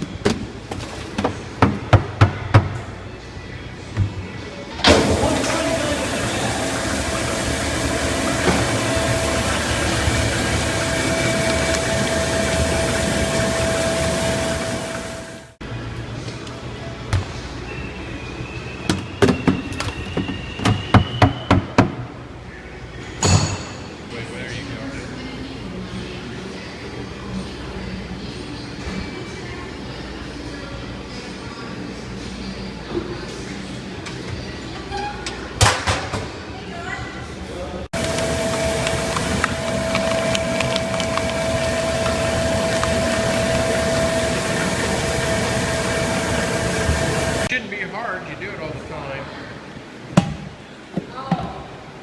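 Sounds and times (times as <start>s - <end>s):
machine humming and whirring: 4.7s - 16.3s, 38.0s - 47.5s.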